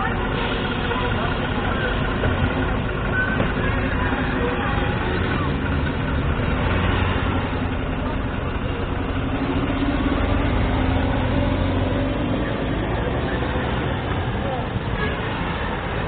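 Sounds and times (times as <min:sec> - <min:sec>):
car engine idling: 0:00.0 - 0:16.0
street traffic: 0:00.0 - 0:16.0.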